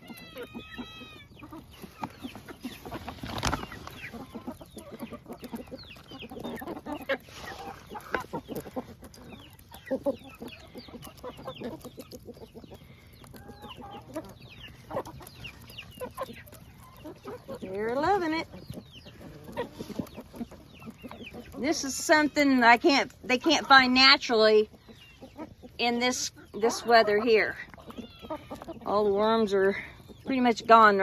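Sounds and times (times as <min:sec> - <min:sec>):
chickens clucking: 0:00.0 - 0:31.0.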